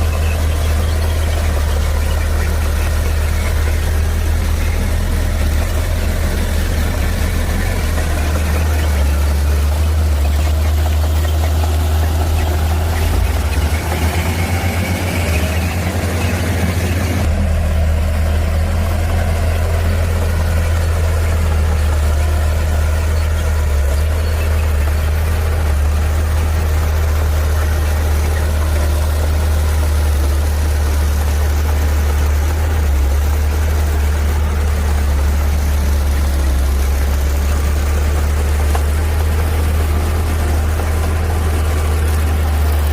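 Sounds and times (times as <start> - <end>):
heavy diesel engine humming: 0.0 - 42.9.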